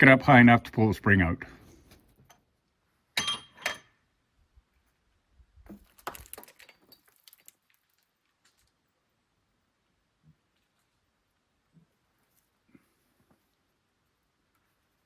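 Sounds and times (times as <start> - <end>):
sharp metal clanks: 3.2 - 4.0.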